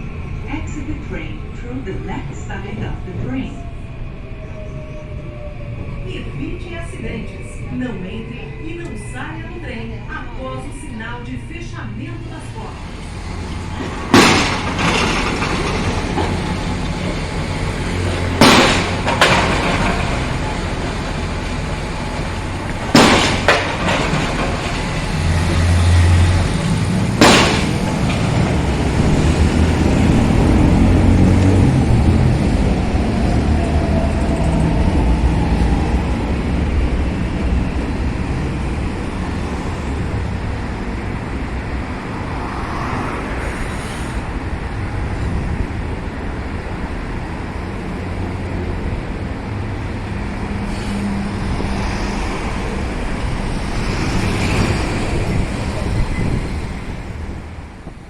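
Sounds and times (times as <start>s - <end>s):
train rumbling inside carriage: 0.0s - 58.0s.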